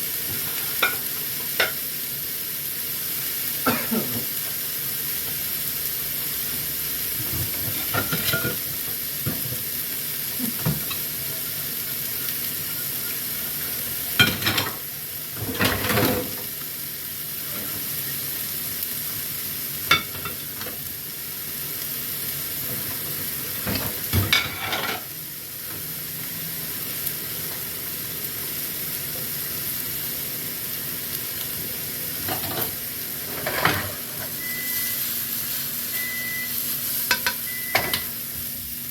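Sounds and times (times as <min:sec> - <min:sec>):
food sizzling in a pan: 0:00.0 - 0:38.9
utensil scraping a pan: 0:32.3 - 0:34.2.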